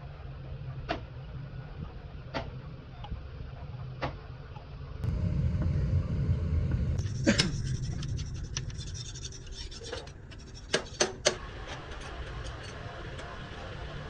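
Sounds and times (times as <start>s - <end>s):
low rumble: 5.0s - 10.4s.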